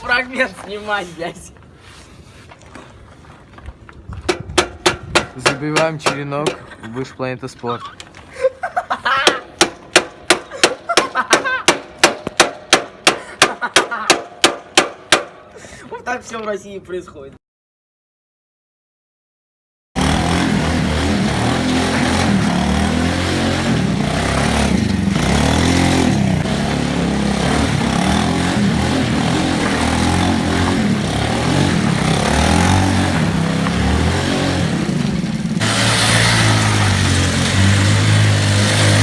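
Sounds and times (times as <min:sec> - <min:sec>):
motorcycle engine revving: 0:20.0 - 0:39.0.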